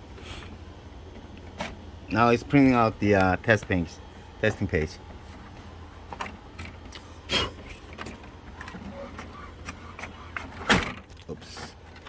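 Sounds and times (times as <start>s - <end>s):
printer motor hum: 0.0s - 12.0s
print carriage clicks: 1.1s - 4.0s, 4.9s - 7.0s, 7.6s - 12.0s.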